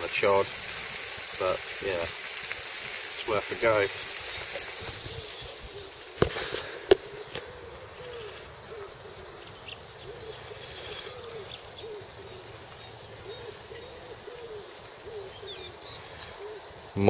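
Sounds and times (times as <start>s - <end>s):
pigeon cooing: 4.7s - 16.8s.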